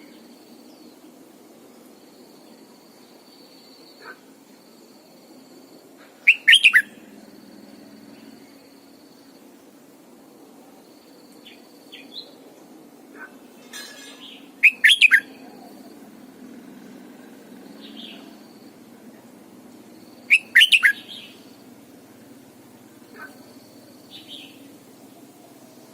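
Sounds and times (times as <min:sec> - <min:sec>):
steady low hum: 0:00.0 - 0:13.6, 0:15.2 - 0:25.9
bird singing: 0:06.0 - 0:09.6, 0:10.9 - 0:12.4, 0:13.2 - 0:19.3, 0:19.9 - 0:21.9, 0:22.9 - 0:25.9
soft bird chirps: 0:06.3 - 0:07.0, 0:14.0 - 0:15.9, 0:20.2 - 0:21.6.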